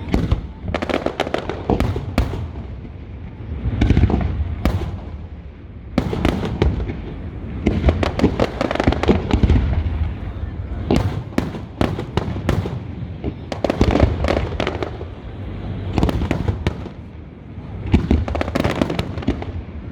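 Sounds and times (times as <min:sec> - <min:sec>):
fireworks bangs and crackles: 0:00.0 - 0:19.9.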